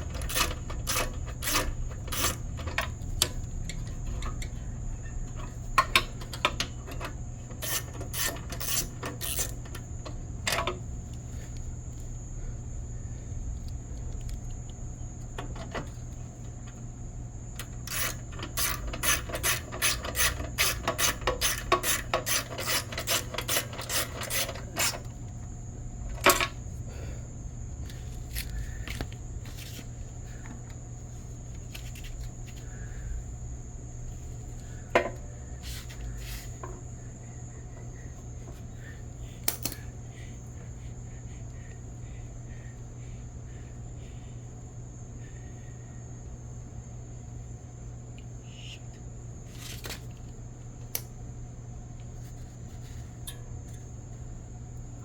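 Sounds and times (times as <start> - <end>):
ratchet wrench clicking: 0.0 - 2.9, 7.6 - 9.8, 17.6 - 25.1
sharp knocks of parts handled: 39.4 - 39.8.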